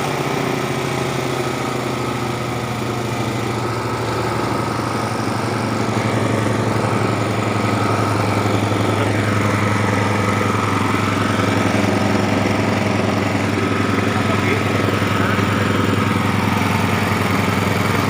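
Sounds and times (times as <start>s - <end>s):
machine high whine: 0.0s - 18.0s
small engine running: 0.0s - 18.0s.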